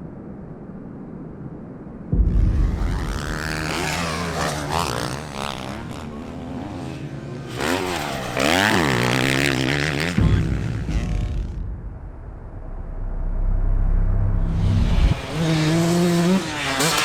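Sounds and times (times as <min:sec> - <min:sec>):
close bike revving: 0:02.7 - 0:11.6, 0:14.3 - 0:17.0
dirt bike engines revving: 0:03.1 - 0:11.4, 0:14.6 - 0:17.0.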